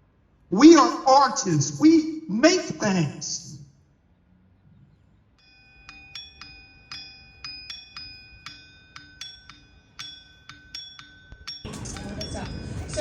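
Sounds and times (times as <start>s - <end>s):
light strikes on metal ringing: 5.4s - 13.0s.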